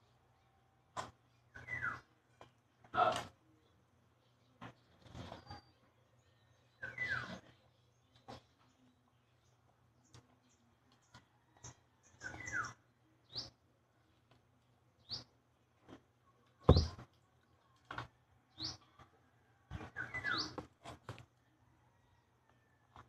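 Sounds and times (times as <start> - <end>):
small bird chirping: 4.4 - 13.6, 19.8 - 20.7
loud thump: 16.7 - 17.0.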